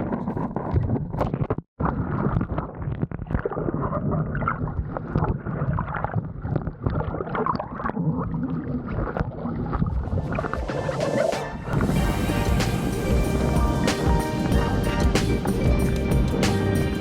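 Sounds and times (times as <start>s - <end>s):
water rushing and splashing: 9.4s - 16.7s.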